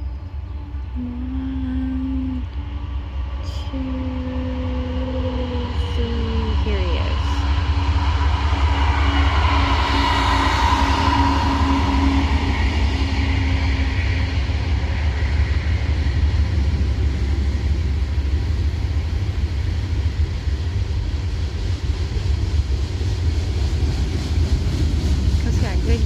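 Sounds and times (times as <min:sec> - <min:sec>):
freight train rumbling past: 0:00.0 - 0:26.0
high-pitched whine: 0:00.0 - 0:26.0.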